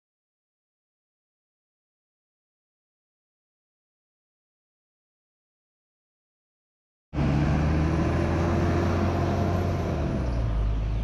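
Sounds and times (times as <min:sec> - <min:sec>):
bus engine humming: 0:07.2 - 0:11.0.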